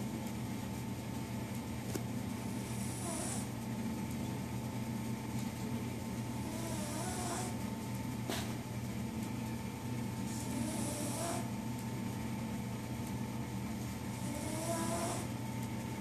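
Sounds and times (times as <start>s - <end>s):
dog snoring with whistle: 2.6s - 3.5s, 6.4s - 7.6s, 10.3s - 11.5s, 14.2s - 15.3s.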